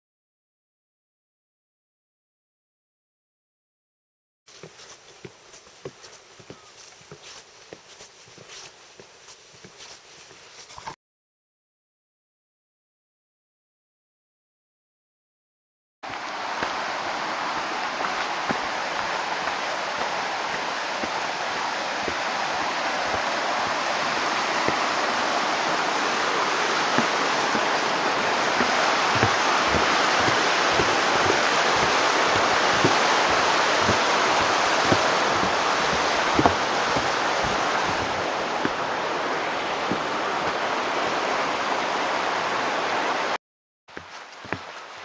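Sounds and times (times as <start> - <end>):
rushing water: 4.5 - 11.0, 16.0 - 45.0.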